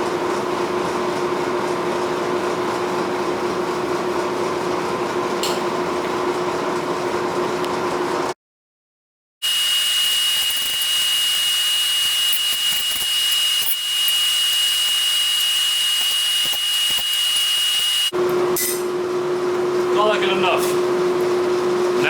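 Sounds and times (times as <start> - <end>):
forge hissing with high whine: 9.4 - 18.1.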